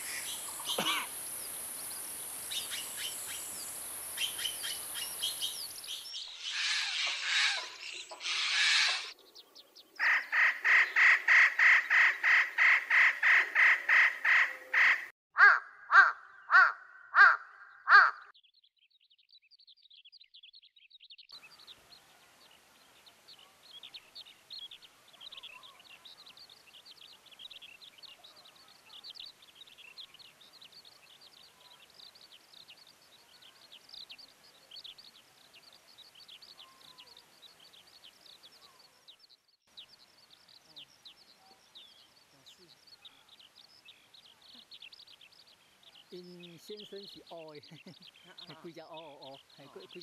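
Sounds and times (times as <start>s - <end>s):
small birds chirping: 0.0s - 15.1s, 15.9s - 50.0s
crow cawing harshly: 6.6s - 9.1s, 10.0s - 18.3s.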